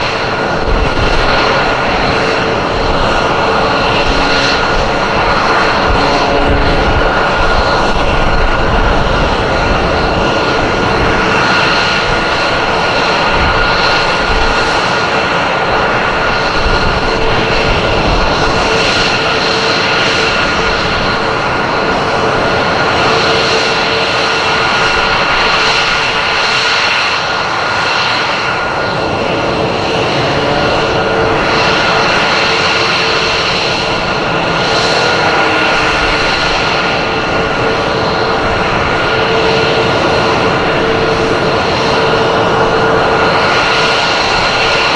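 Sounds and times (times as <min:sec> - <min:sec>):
jet engine roar with whine: 0:00.0 - 0:44.9.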